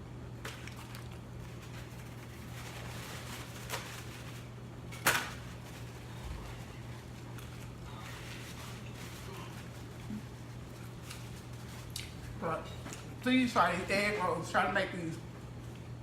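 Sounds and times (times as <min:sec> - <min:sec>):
steady low hum: 0:00.0 - 0:16.0
person eating: 0:06.0 - 0:13.1.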